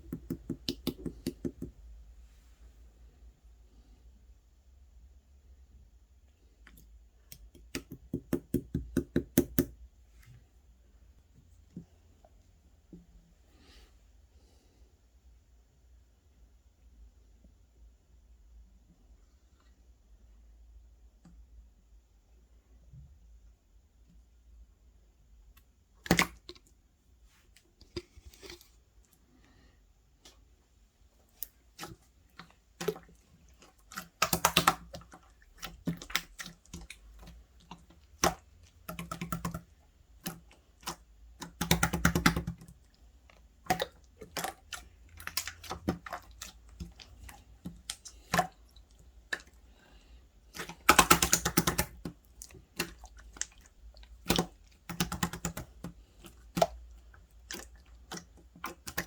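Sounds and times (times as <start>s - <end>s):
small clicks and taps: 0.0s - 1.8s.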